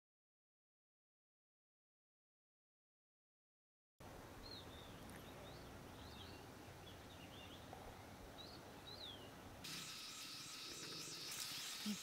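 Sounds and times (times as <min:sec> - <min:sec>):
small birds chirping: 0:04.4 - 0:12.0
insect buzz: 0:09.6 - 0:12.0.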